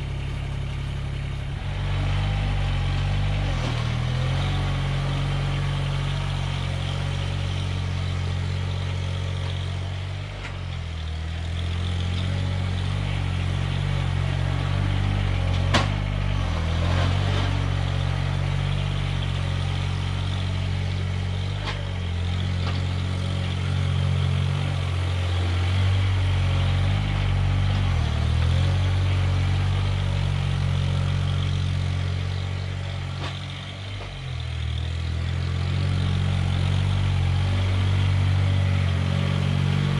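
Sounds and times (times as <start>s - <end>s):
snow-clearing machine engine: 0.0s - 39.9s.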